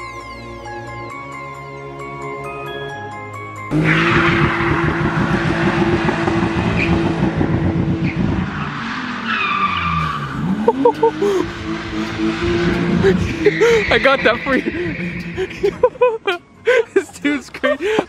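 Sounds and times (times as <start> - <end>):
background music: 0.0 - 6.6
car engine revving: 3.6 - 16.3.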